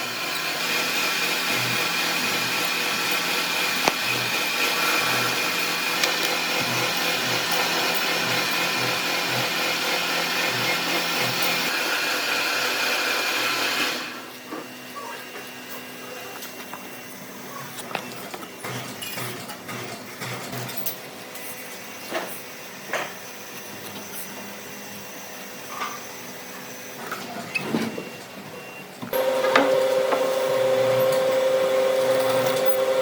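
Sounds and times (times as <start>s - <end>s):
power tool cutting wood: 0.0s - 14.2s, 29.1s - 33.0s.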